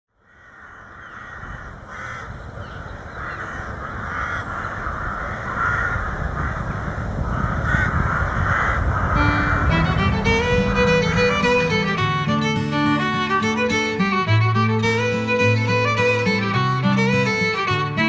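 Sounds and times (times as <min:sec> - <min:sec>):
harsh bird calls: 0:00.2 - 0:12.0
fiddle music: 0:08.3 - 0:18.0.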